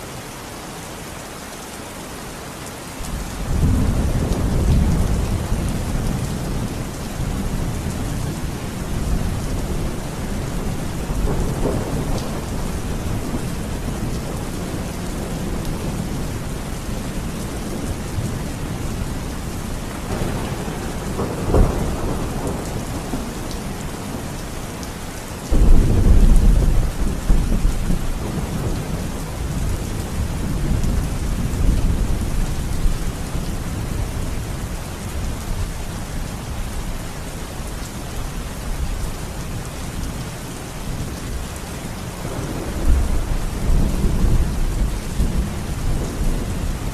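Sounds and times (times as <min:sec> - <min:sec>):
steady rain: 0:00.0 - 0:46.9
rolling thunder: 0:03.0 - 0:24.4, 0:25.5 - 0:34.2, 0:42.2 - 0:46.9.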